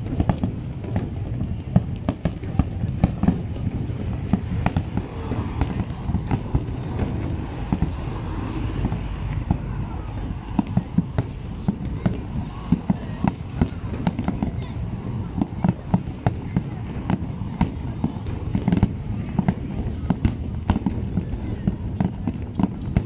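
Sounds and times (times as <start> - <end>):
fireworks bangs and crackles: 0.0 - 23.0
low rumble: 2.8 - 15.4.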